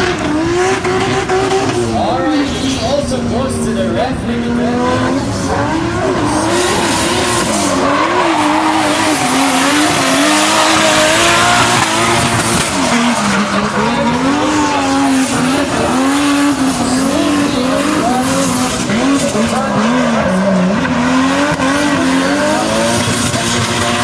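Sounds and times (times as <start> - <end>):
car engine at high revs: 0.0 - 24.0
tyres screeching: 5.0 - 23.9.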